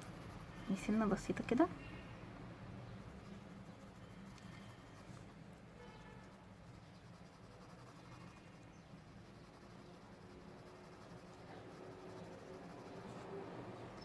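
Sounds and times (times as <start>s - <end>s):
pencil scratching on paper: 0.0s - 1.7s, 2.9s - 14.0s.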